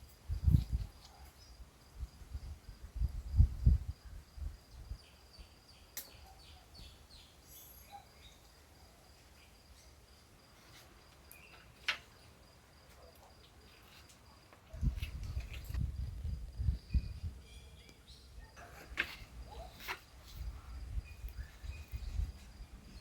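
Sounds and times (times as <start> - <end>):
high insect trill: 0.0 - 23.0
bird chirps: 5.0 - 10.0, 16.7 - 18.8.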